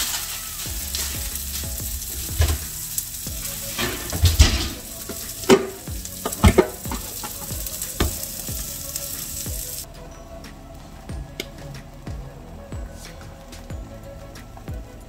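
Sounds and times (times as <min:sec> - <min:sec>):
food sizzling in a pan: 0:00.0 - 0:09.9.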